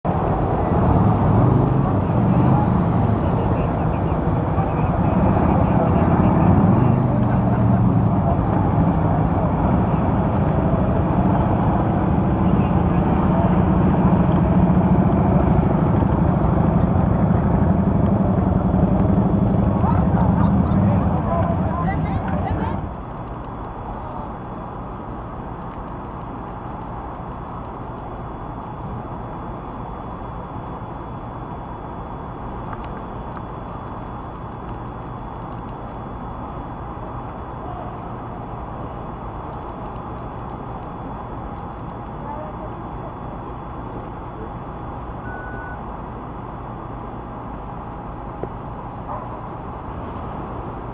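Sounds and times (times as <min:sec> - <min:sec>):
vehicle engine idling: 0:00.0 - 0:23.0
traffic rumble: 0:00.0 - 0:24.3.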